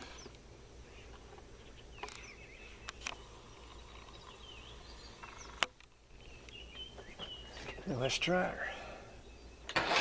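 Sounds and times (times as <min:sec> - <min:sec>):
faint bird chirps: 0:00.0 - 0:09.7
small sharp clicks: 0:02.0 - 0:04.4.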